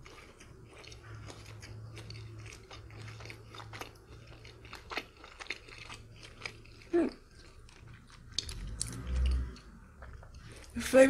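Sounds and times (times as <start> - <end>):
soft crunchy chewing: 0.0 - 11.0
wet mouth clicks: 8.2 - 10.5.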